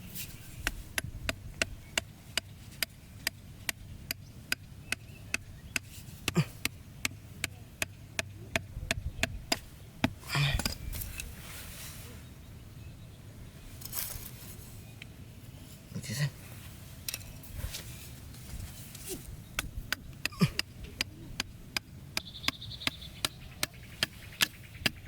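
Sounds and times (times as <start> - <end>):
brief rustle: 13.7 - 14.8.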